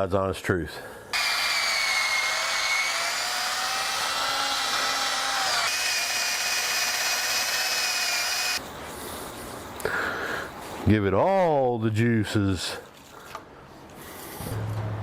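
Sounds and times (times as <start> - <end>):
power drill whining: 1.2 - 8.6.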